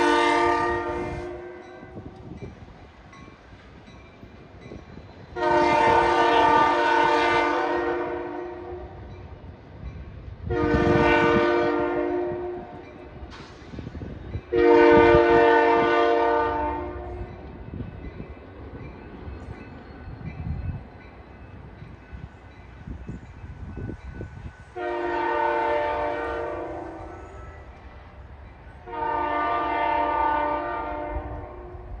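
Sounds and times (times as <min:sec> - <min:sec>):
locomotive air horn blasts: 0:00.0 - 0:02.1, 0:05.4 - 0:09.0, 0:10.4 - 0:12.9, 0:14.5 - 0:17.3, 0:24.7 - 0:27.6, 0:28.8 - 0:32.0
locomotive engines and wheels rumbling: 0:00.0 - 0:32.0.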